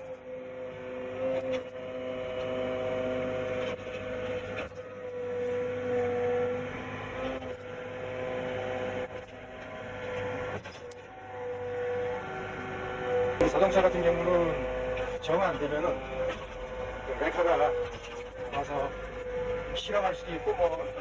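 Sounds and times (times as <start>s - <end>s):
log splitter motor whine: 0.0s - 21.0s.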